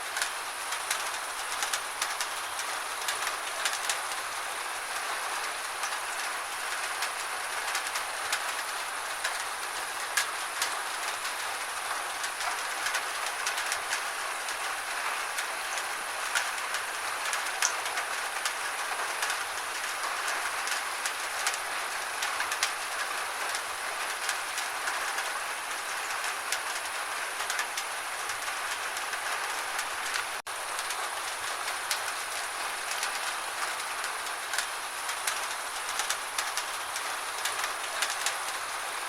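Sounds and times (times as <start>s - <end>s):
gentle rain hissing: 0.0s - 39.0s
rain drips on a surface: 0.0s - 39.0s.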